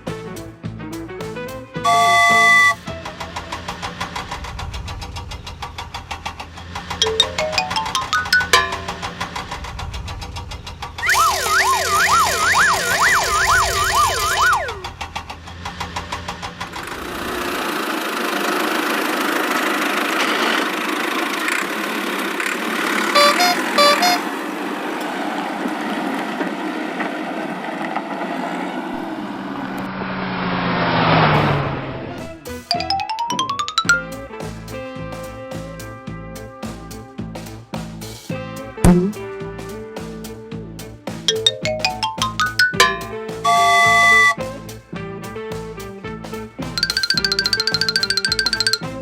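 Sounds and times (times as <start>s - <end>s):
short beeps: 1.9s - 2.8s, 23.2s - 24.2s, 41.3s - 44.4s
siren-like wail: 1.9s - 2.8s, 11.0s - 14.9s
cartoon engine chugging: 41.4s - 44.4s, 46.8s - 49.0s.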